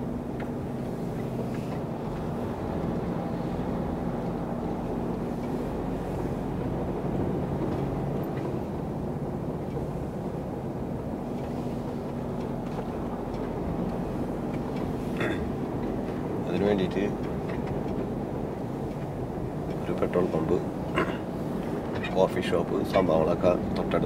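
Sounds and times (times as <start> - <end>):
truck engine and road noise: 0.0 - 24.0.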